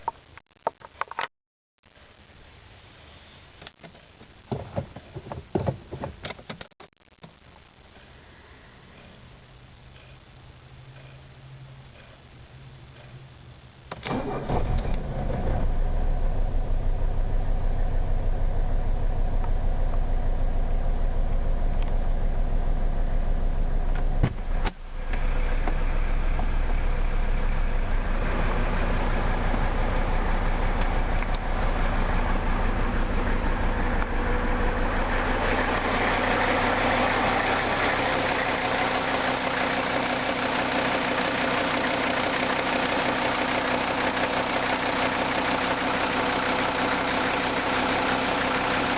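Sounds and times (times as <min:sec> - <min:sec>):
diesel engine cranking and starting: 0:14.0 - 0:20.7, 0:23.5 - 0:48.9
diesel engine idling with knock: 0:23.9 - 0:48.9.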